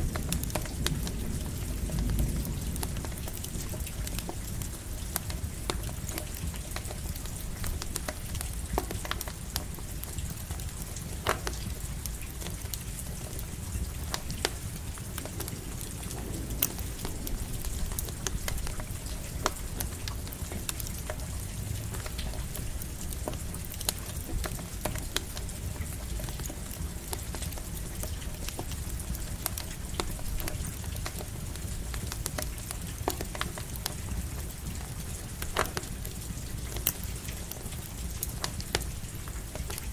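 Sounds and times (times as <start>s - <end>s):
campfire crackling and popping: 0.0s - 39.9s
light rain hiss: 0.0s - 39.9s.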